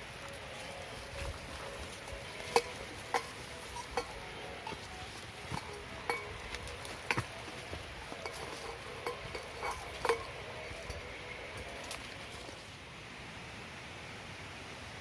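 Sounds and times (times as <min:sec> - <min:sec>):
metallic clinks and knocks: 0:01.1 - 0:12.6.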